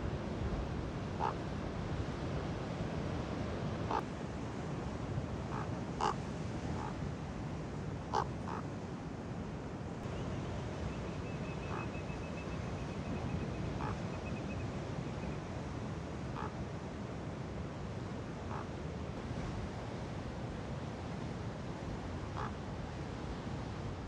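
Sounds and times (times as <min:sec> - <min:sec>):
raven calling: 0:05.5 - 0:06.2, 0:08.1 - 0:08.6.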